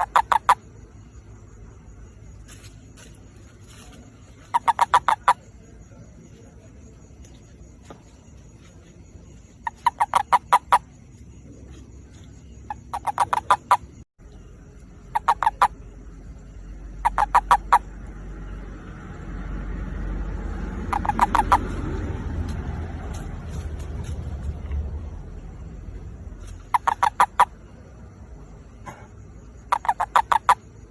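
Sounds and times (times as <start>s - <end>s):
toad pulsed croaks: 0.0s - 0.8s, 4.4s - 5.6s, 9.6s - 11.0s, 12.6s - 14.0s, 14.8s - 18.1s, 20.8s - 21.8s, 26.5s - 27.7s, 28.8s - 30.9s
low background rumble: 10.6s - 30.9s.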